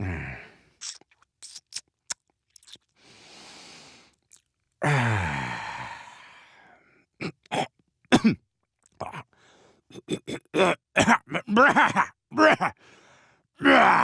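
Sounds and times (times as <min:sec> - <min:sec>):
man groaning sigh: 0:00.0 - 0:00.5, 0:04.8 - 0:06.3
mouth clicks and smacks: 0:00.8 - 0:02.9, 0:04.1 - 0:04.6
breathy exhale: 0:03.0 - 0:04.1
man grunting: 0:10.1 - 0:12.7, 0:13.6 - 0:14.0.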